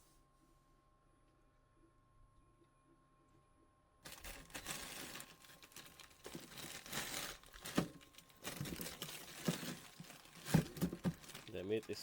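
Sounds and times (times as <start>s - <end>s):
faint steady hum: 0.0s - 12.0s
plastic packaging crinkling: 4.0s - 12.0s.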